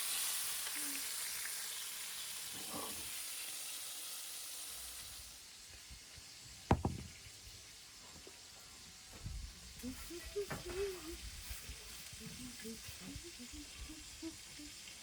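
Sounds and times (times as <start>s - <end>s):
fish sizzling in hot oil: 0.0s - 6.5s.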